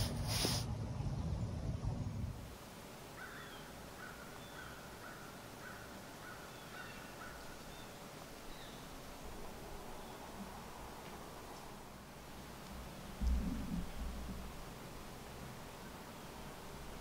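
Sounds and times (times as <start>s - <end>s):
bird calling: 3.1s - 9.0s.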